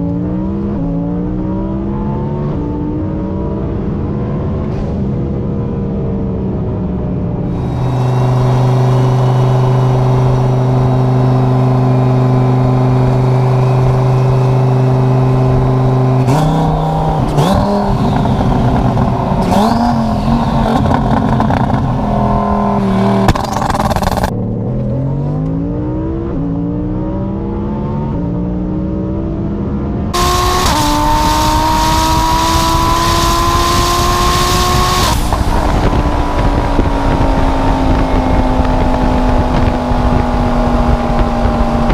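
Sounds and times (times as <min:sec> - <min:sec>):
sports car engine revving: 0:00.0 - 0:41.9
loud rushing noise: 0:04.6 - 0:24.4, 0:30.2 - 0:37.3.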